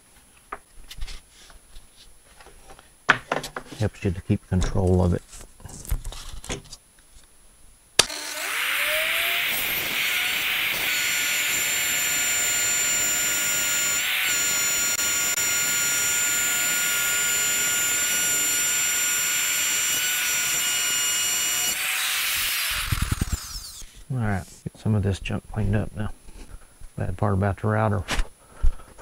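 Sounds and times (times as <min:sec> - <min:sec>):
electric router whining: 0:08.0 - 0:24.1.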